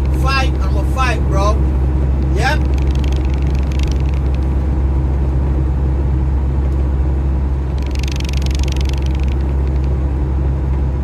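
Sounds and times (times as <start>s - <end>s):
truck engine and road noise: 0.0s - 11.0s
hissing rattle: 2.6s - 4.6s, 7.7s - 10.0s.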